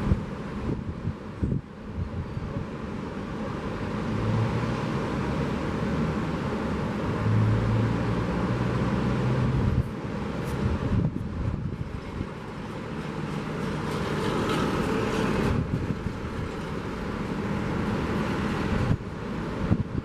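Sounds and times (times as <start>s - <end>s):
wind on microphone: 0.0s - 3.0s, 7.2s - 13.0s, 14.9s - 17.5s, 18.2s - 20.0s
vehicle passing: 2.4s - 20.0s.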